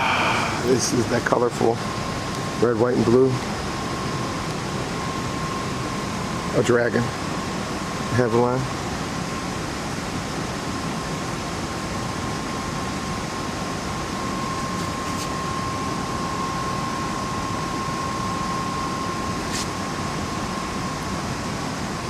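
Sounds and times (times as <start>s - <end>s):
high-pitched hum: 0.0s - 2.3s
hangar background rushing noise: 0.0s - 3.7s.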